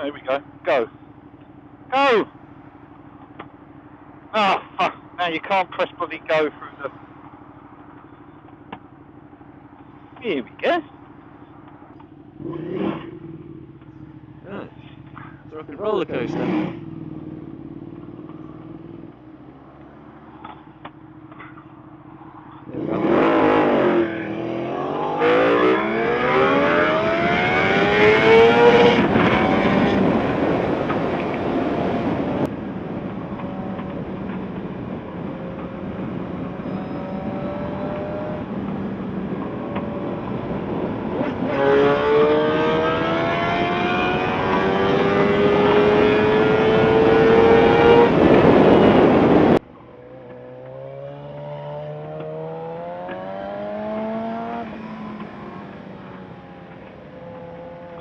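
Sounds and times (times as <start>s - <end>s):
motorcycle engine accelerating: 0.0s - 58.0s
wind rush: 27.0s - 33.4s, 44.2s - 49.6s.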